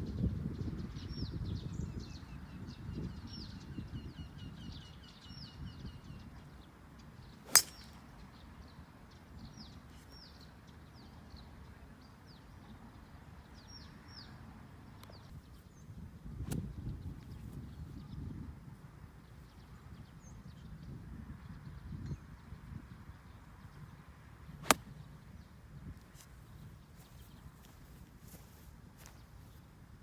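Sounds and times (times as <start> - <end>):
golf club striking ball: 7.5 - 8.0, 24.6 - 24.9.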